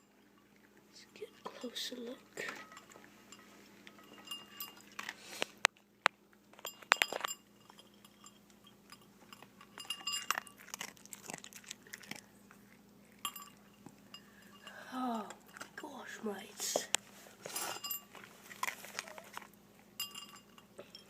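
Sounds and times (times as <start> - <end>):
sharp clinks: 2.4 - 5.0, 6.6 - 10.7, 13.2 - 14.8, 20.0 - 21.0
dog crunching dry kibble: 3.8 - 14.0, 17.4 - 20.6.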